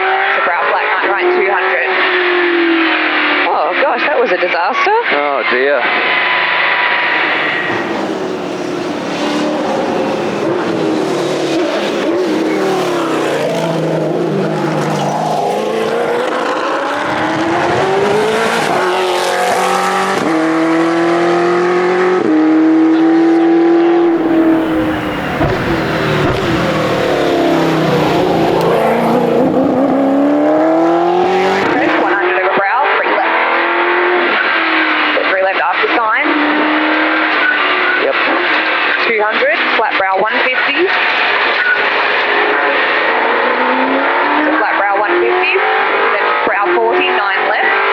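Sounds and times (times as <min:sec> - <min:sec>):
car engine accelerating: 0:07.0 - 0:32.5.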